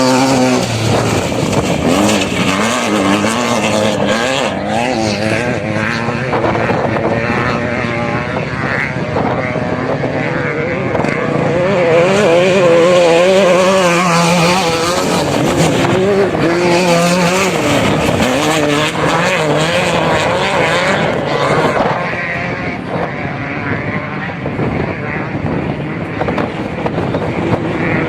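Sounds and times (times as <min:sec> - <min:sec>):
rushing noise: 0:00.0 - 0:07.2
off-road vehicle engine revving: 0:00.0 - 0:28.0.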